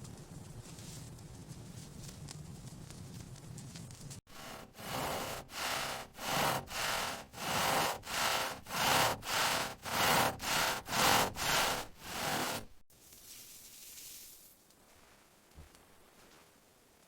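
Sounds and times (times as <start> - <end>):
hand saw cutting wood: 4.3 - 12.8.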